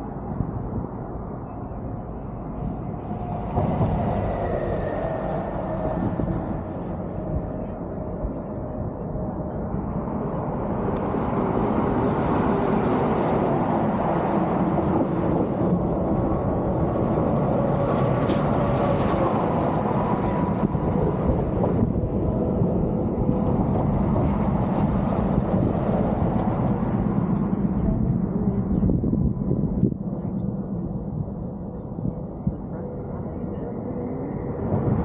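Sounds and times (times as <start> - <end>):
low rumbling noise: 0.0 - 35.0
faint whine: 26.6 - 35.0.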